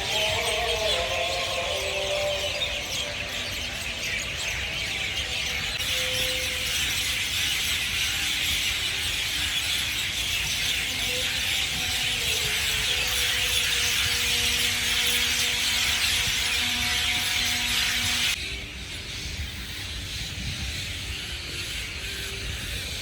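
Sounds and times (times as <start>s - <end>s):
birds chirping and twittering: 0.0s - 23.0s.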